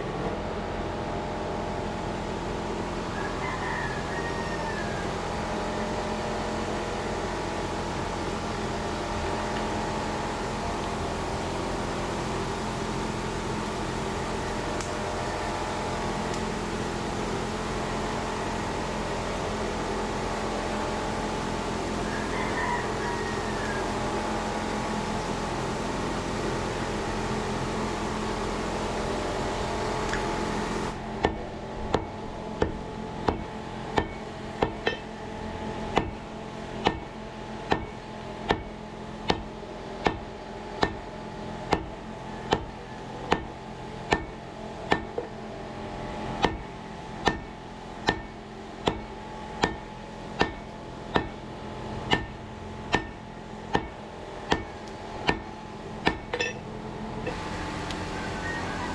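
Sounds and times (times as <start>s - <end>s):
mechanical hiss and hum: 0.0s - 58.9s
hammer striking steel on anvil: 31.2s - 35.2s, 35.9s - 36.2s, 36.8s - 37.1s, 37.7s - 37.9s, 38.5s - 38.7s, 39.3s - 41.0s, 42.5s - 42.7s, 43.3s - 43.5s, 44.1s - 45.4s, 46.4s - 51.4s, 52.1s - 56.6s.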